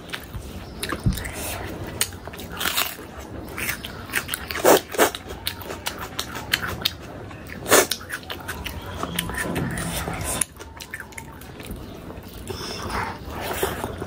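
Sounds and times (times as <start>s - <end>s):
chewing and wet mouth smacks: 3.6s - 14.0s.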